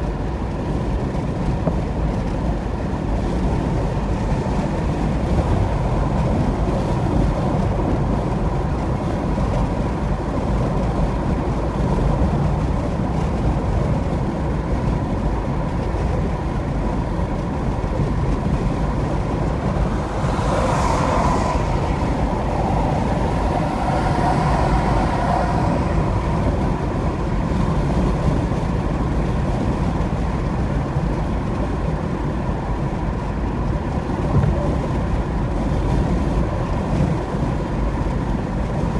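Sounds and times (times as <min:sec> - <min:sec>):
road and tyre noise: 0:00.0 - 0:38.9
low engine rumble: 0:02.0 - 0:31.8.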